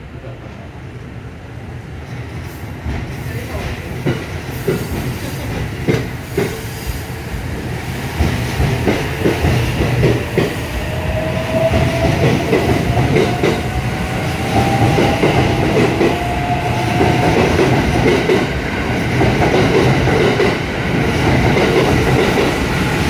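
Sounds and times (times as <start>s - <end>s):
train wheels clicking over rail joints: 2.8s - 6.7s, 8.2s - 10.6s.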